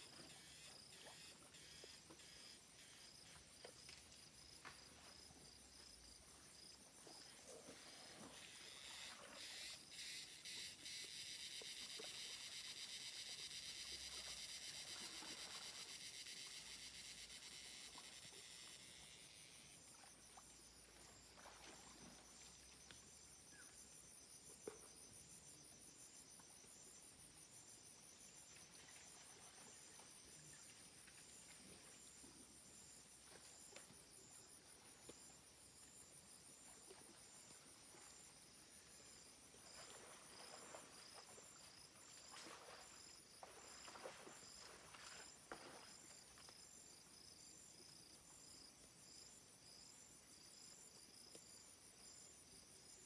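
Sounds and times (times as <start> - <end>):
insect chorus high trill: 0.0 - 3.4, 8.1 - 19.8.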